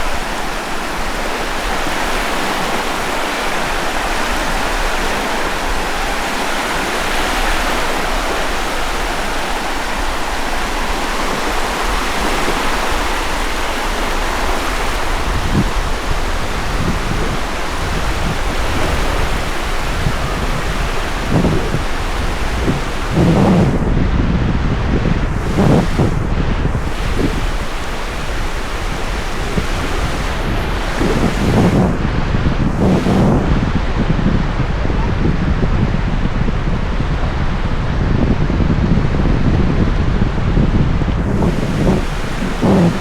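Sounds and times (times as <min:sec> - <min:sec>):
ocean surf washing onto beach: 0:00.0 - 0:43.0
wind buffeting microphone: 0:00.0 - 0:43.0.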